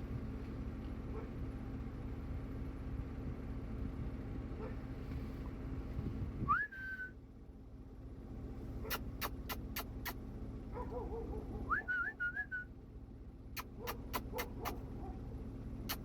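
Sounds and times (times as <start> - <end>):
swooping whistle: 6.5 - 7.2, 11.7 - 12.7.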